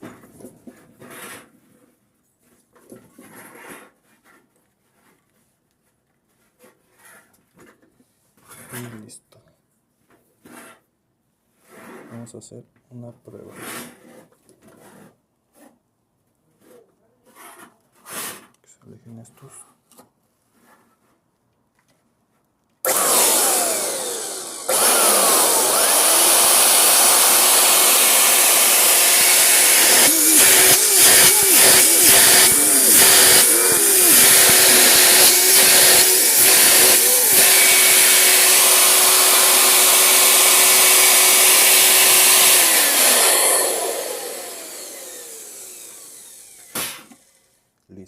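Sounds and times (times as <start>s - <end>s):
vacuum motor whining: 22.9s - 47.4s.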